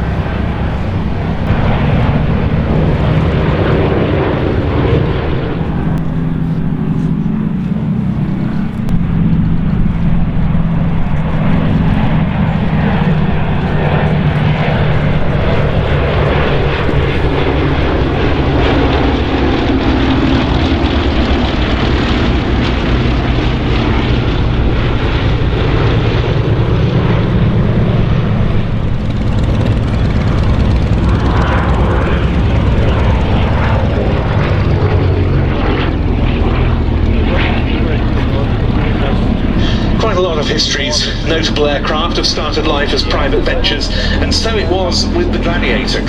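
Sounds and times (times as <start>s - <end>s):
propeller aircraft droning past: 0.0s - 46.0s.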